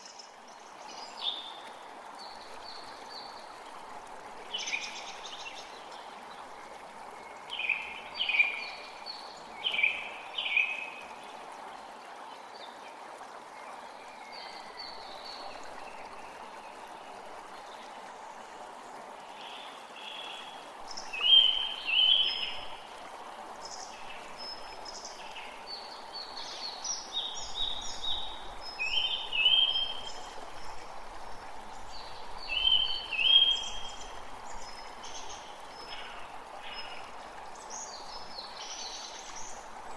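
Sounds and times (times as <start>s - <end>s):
creek water rushing: 0.0s - 39.9s
songbirds calling: 4.5s - 11.2s, 19.3s - 22.9s, 23.6s - 39.7s.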